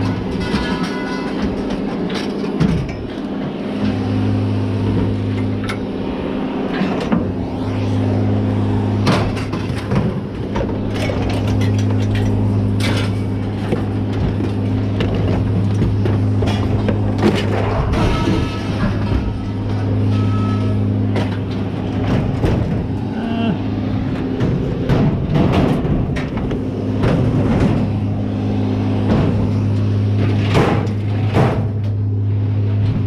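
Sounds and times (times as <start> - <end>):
scrap metal clanking: 0.0 - 3.3, 9.0 - 22.8
low mechanical hum: 0.0 - 33.0.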